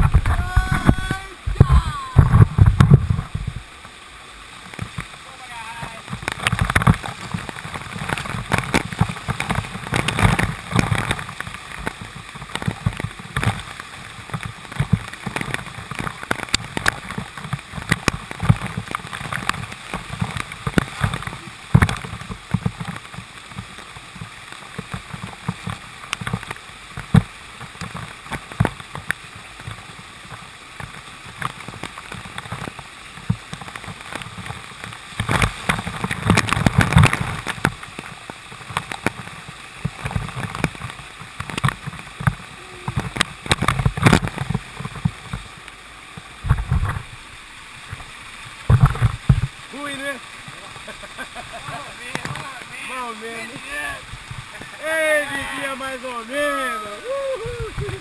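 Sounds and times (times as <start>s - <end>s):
low uneven rumbling: 0.0s - 27.2s.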